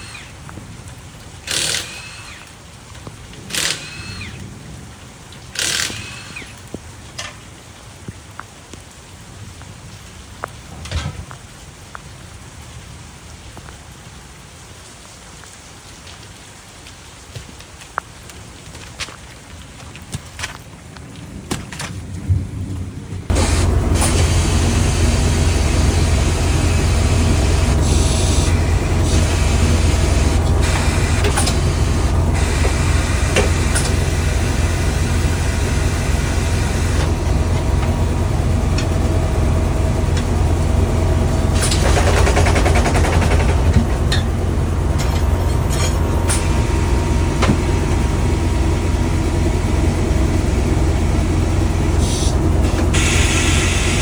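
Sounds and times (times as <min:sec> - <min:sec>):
vehicle rumble with hiss: 0:23.3 - 0:54.0.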